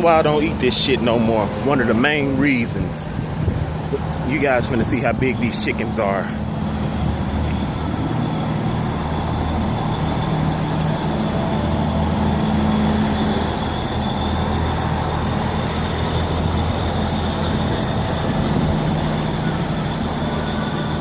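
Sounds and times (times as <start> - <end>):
diesel truck engines idling: 0.0 - 21.0
faint high whine: 0.0 - 21.0.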